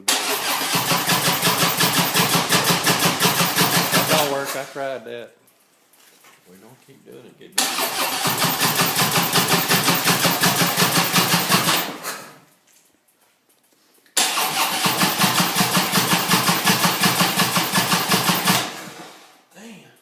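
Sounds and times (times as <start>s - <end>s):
motorcycle engine cranking: 0.0s - 4.7s, 7.6s - 12.4s, 14.2s - 19.0s.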